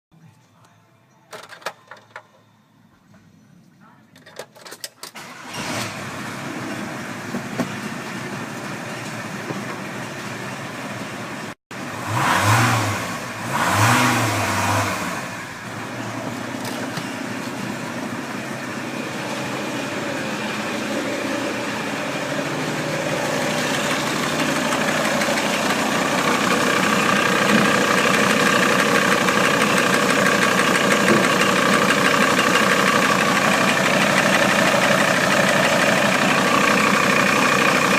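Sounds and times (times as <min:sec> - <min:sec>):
diesel engine starting and idling: 0:05.0 - 0:37.9
diesel engine revving: 0:05.2 - 0:08.9, 0:11.4 - 0:37.9.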